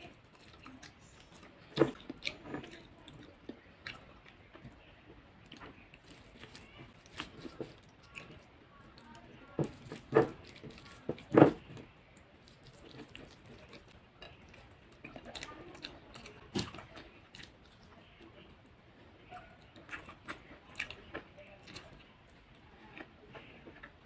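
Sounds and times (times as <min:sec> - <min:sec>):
chewing and mouth noises: 0:00.0 - 0:24.0.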